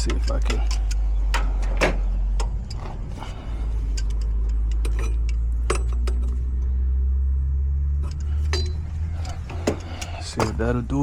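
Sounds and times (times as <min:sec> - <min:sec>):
clicks and taps on copper pipe: 0:00.0 - 0:02.9
low hum: 0:00.0 - 0:11.0.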